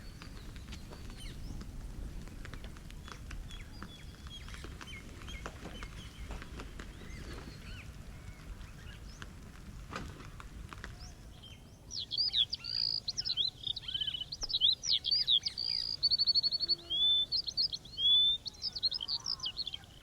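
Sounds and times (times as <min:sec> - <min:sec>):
low outdoor rumble: 0:00.0 - 0:12.1
small birds chirping: 0:00.0 - 0:20.0.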